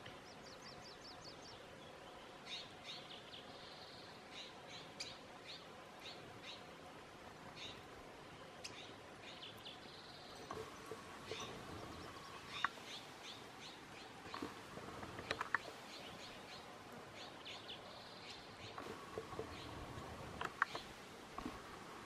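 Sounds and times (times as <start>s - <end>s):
outdoor hiss: 0.0s - 22.0s
sharp clicks: 14.2s - 15.8s, 20.3s - 21.6s.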